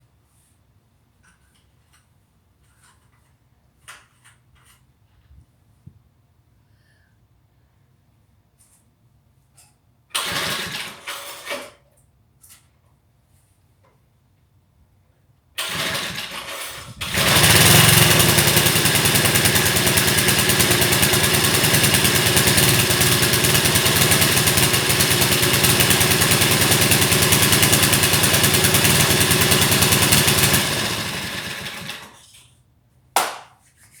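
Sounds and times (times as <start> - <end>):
small engine starting and running: 10.1 - 11.8, 15.6 - 32.4.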